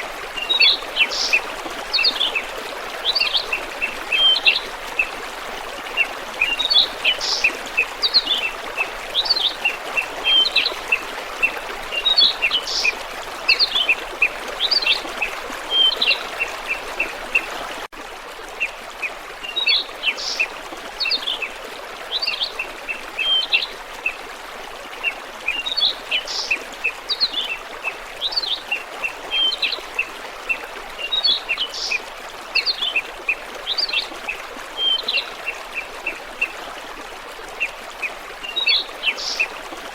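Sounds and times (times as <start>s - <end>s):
flowing water rushing: 0.0s - 39.9s
small birds chirping: 0.4s - 5.1s, 6.0s - 15.1s, 38.5s - 39.6s.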